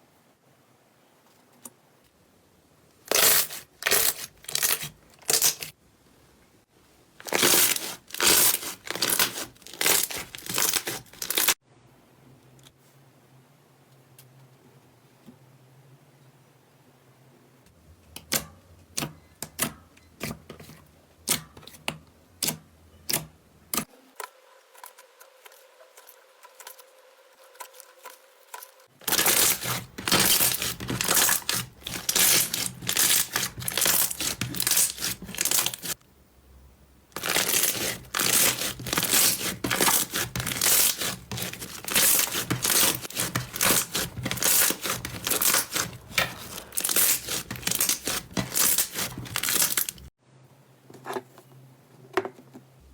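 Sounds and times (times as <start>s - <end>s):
slime popping and crackling: 7.3s - 11.6s, 37.2s - 50.1s.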